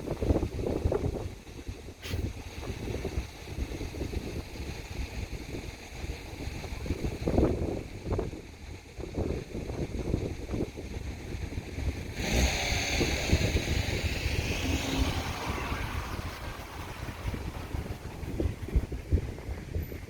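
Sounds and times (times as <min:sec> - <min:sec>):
wind buffeting microphone: 0:00.0 - 0:20.0
rushing hiss: 0:12.2 - 0:19.1.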